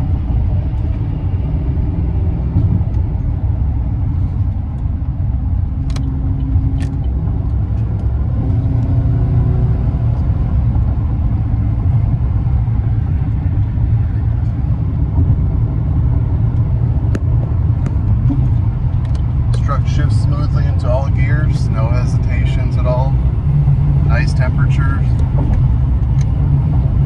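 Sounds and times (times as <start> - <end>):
truck engine rumbling: 0.0 - 27.0.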